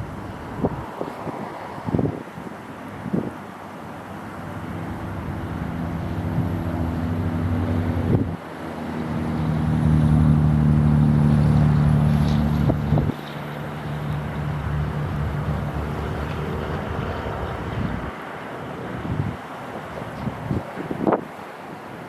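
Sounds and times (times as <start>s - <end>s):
low engine drone: 3.6s - 19.4s.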